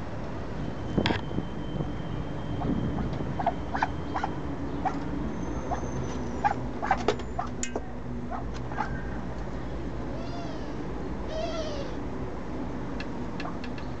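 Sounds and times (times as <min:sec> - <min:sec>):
cat meowing: 0:10.1 - 0:12.0.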